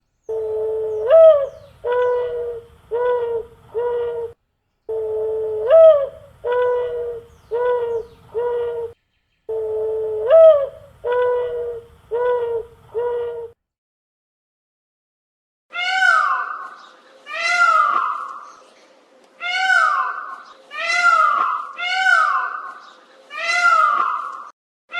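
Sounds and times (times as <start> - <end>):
dove cooing: 0.3 - 13.6.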